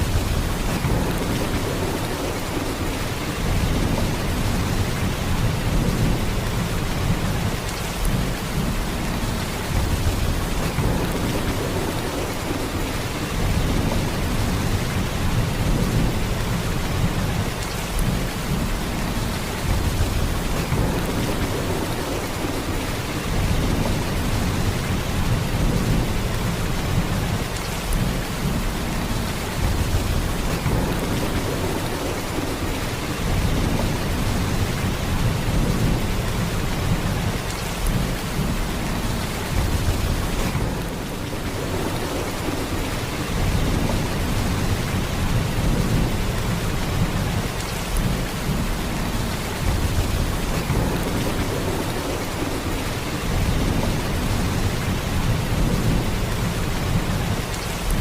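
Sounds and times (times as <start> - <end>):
heavy rain downpour: 0.0 - 58.0.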